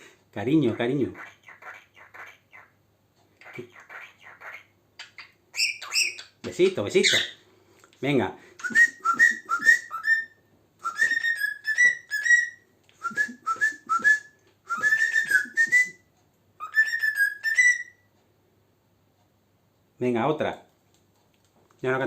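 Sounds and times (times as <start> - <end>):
cockatiel whistling a tune: 3.9 - 6.3, 8.6 - 16.0, 16.6 - 18.1.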